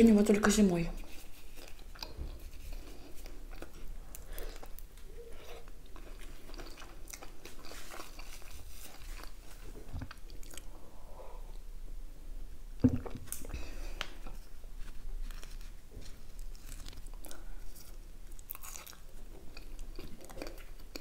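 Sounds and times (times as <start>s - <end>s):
wet chewing: 1.0s - 10.7s, 16.4s - 21.0s.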